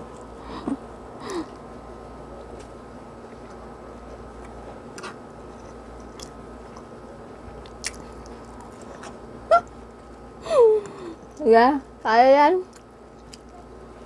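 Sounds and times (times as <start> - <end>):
person chewing noodles: 2.4 - 10.2, 12.7 - 13.8.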